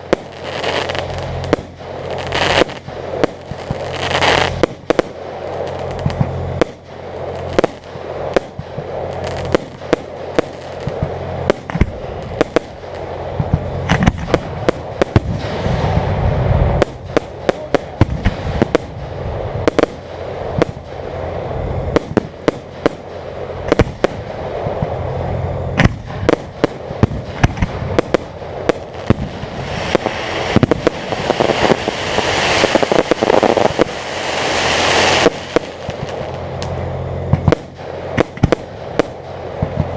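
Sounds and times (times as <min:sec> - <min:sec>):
fireworks bangs: 0:00.0 - 0:39.9
fireworks crackling: 0:00.0 - 0:39.9
steady low hum: 0:00.0 - 0:39.9.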